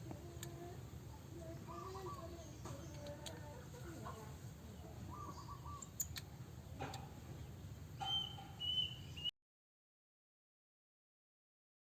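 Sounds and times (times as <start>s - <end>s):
faint bird chirps: 1.5s - 3.4s, 4.0s - 6.2s, 8.0s - 9.3s.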